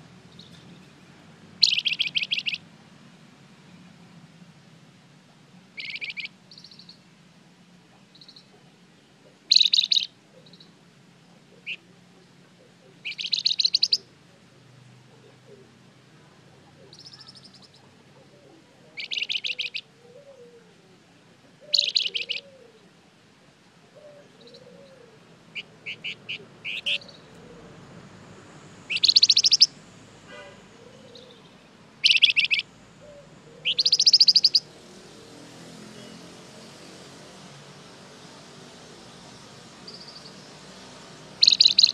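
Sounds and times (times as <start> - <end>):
songbird trilling: 1.6 - 2.6, 5.8 - 7.0, 8.1 - 8.5, 9.4 - 10.7, 11.6 - 11.8, 12.7 - 14.1, 16.7 - 18.0, 18.9 - 20.5, 21.6 - 22.6, 24.0 - 27.6, 28.8 - 29.8, 30.8 - 34.7, 39.8 - 40.5, 41.4 - 41.9.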